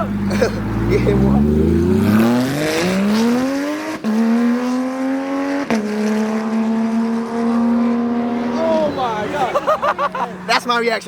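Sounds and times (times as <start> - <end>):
car accelerating hard: 0.0 - 10.6.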